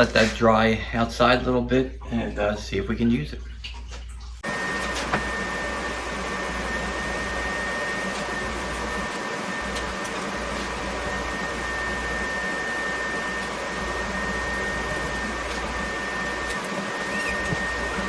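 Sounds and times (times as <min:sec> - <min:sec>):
electric fan running: 0:04.4 - 0:18.0.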